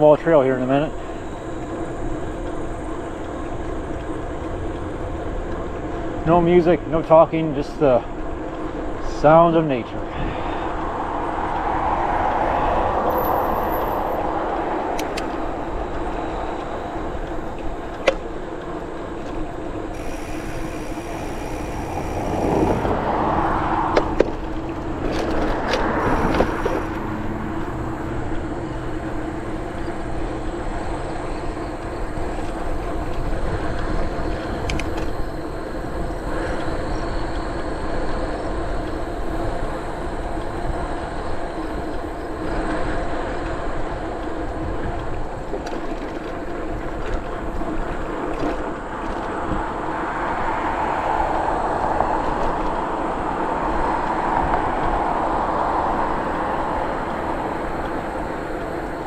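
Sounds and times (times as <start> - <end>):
wind noise: 0.0 - 59.0
bicycle tyre noise: 9.9 - 59.0
faint steady hum: 15.5 - 25.0.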